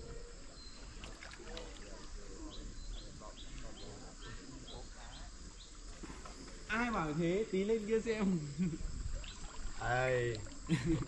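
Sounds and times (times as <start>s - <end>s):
faint voices: 0.0s - 8.1s.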